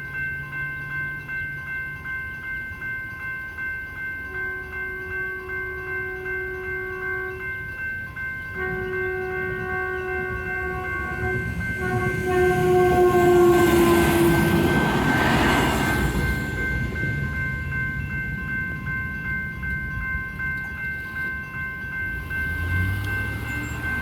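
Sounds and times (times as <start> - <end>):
crossing bells ringing: 0.0 - 24.0
train passing rumble: 0.0 - 24.0
train horn blasts: 4.3 - 7.5, 8.5 - 15.9.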